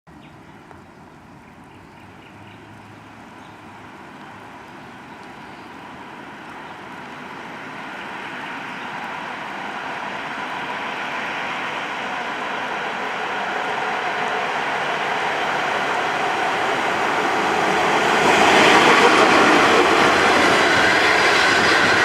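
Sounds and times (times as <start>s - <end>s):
electric train approaching: 5.8s - 22.0s.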